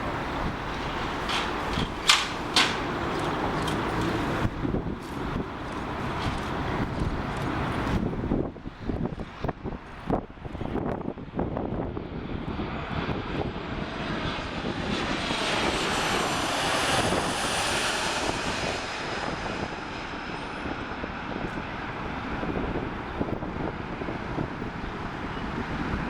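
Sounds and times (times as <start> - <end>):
airliner engines passing overhead: 0.0 - 26.0
wind buffeting microphone: 0.0 - 26.0.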